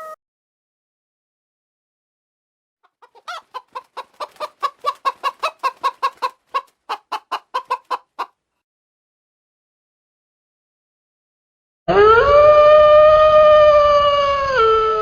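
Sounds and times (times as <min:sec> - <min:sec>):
hen clucking: 0:02.8 - 0:08.4.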